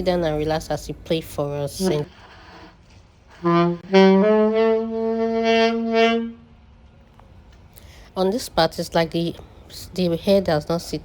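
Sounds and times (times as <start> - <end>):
saxophone notes: 3.3 - 6.5.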